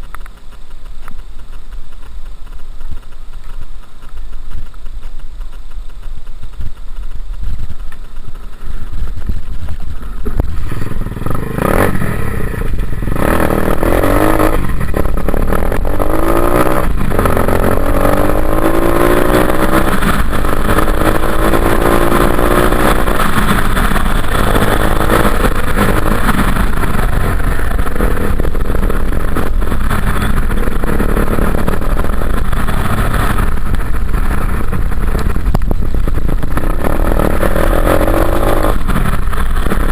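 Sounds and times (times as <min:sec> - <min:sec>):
dirt bike engine revving: 0:09.5 - 0:39.9.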